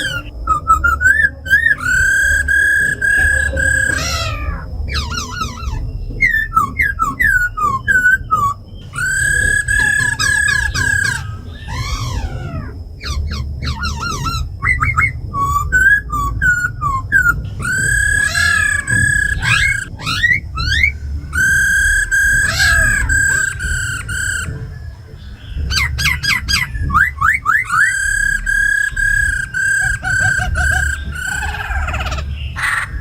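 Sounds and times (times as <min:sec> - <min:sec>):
birds singing whistled notes: 0:00.0 - 0:33.0
rough falling bird call: 0:00.0 - 0:33.0.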